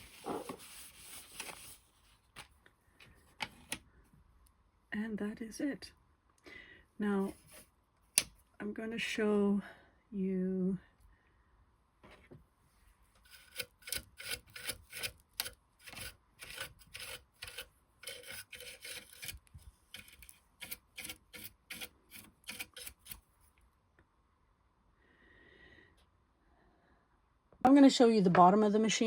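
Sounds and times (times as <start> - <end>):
rubbing or scraping strokes: 0.0 - 2.5, 7.2 - 7.7, 12.7 - 23.3.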